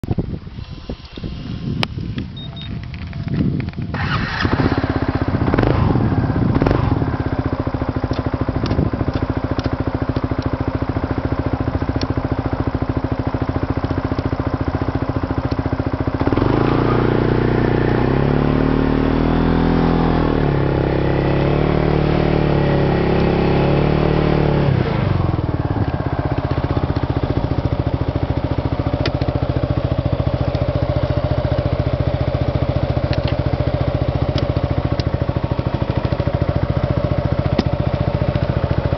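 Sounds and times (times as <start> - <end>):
scooter engine idling: 0.4 - 38.9
scooter engine revving: 3.9 - 38.9.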